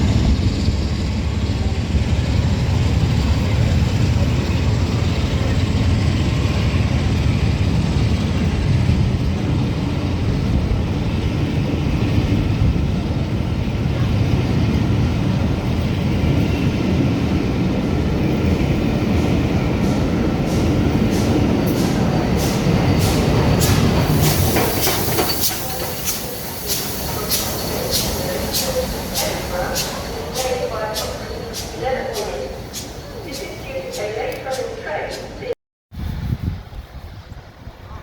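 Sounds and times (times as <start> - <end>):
steam locomotive rumble: 0.0 - 38.0
sharp hissing strokes: 22.4 - 33.2.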